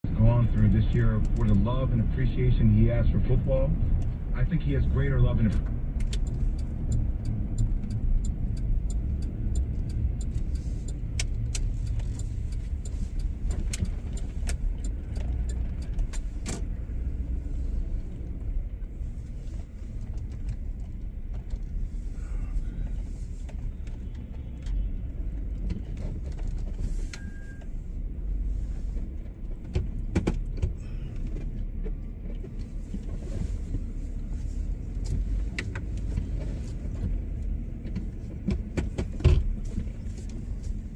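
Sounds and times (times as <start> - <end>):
car cabin rumble: 0.0 - 40.9
light ticks and clicks: 5.5 - 16.7.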